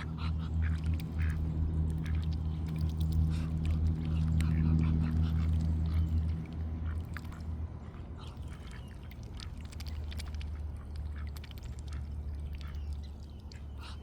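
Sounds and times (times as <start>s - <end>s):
ducks quacking: 0.0s - 2.6s, 3.3s - 9.2s
low rumble: 0.0s - 12.9s.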